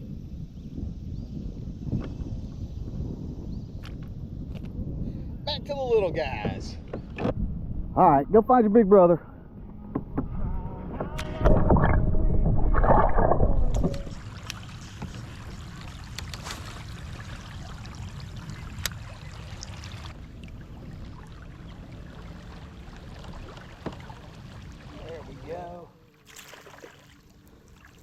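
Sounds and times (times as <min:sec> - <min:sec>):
water around kayak: 0:00.0 - 0:07.8, 0:09.4 - 0:28.0
wind: 0:00.0 - 0:28.0
handling and water noise: 0:11.2 - 0:28.0.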